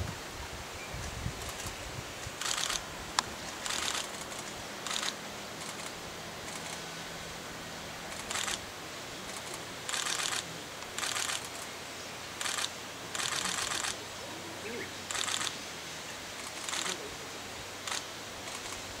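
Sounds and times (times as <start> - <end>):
camera shutter clicking: 2.4 - 2.8, 3.6 - 6.8, 8.2 - 8.6, 9.3 - 11.7, 12.4 - 14.0, 15.1 - 15.6, 16.4 - 17.0, 17.9 - 18.8.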